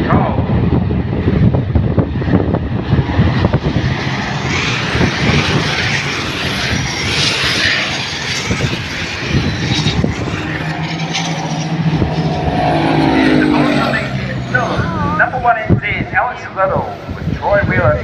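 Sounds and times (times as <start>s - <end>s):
diesel truck engines at full throttle: 0.0s - 18.0s
rushing air noise: 0.0s - 18.0s.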